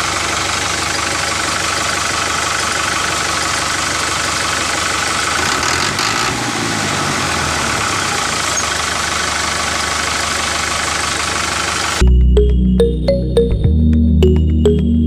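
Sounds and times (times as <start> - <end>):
engine idling roughly: 0.0 - 12.0
music: 12.0 - 15.0.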